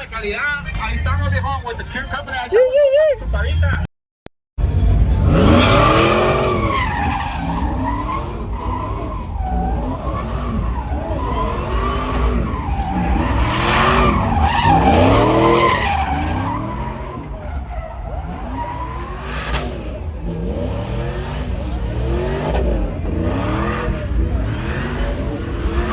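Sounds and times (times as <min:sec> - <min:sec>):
truck engines revving: 0:00.0 - 0:02.5, 0:04.6 - 0:25.9
tyres screeching: 0:05.4 - 0:19.8.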